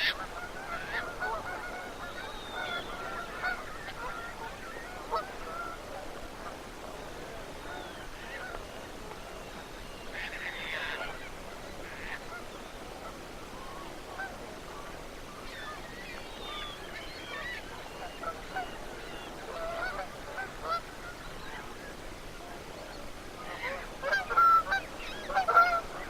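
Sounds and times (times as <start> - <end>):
geese honking: 0.0 - 6.5, 9.6 - 12.4, 15.4 - 21.7, 23.4 - 26.0.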